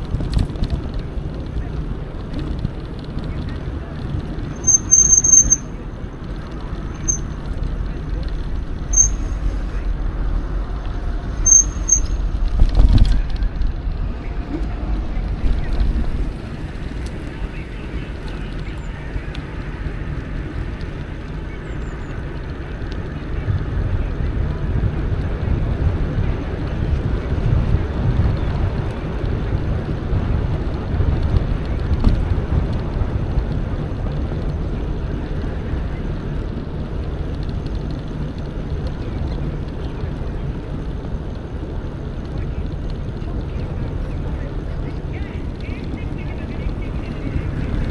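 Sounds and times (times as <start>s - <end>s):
bike tyres rolling: 0.0s - 47.9s
wind rumble on microphone: 0.0s - 47.9s
short high-pitched squeaks: 4.4s - 5.8s, 6.8s - 7.7s, 8.9s - 9.8s, 11.4s - 12.4s
bike jolt: 11.3s - 17.6s.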